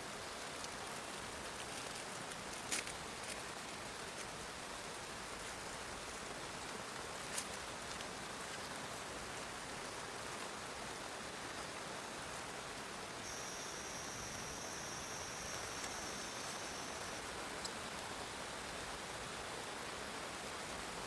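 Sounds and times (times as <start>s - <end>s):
rain falling: 0.0s - 21.0s
thin high-pitched tone: 13.3s - 17.2s.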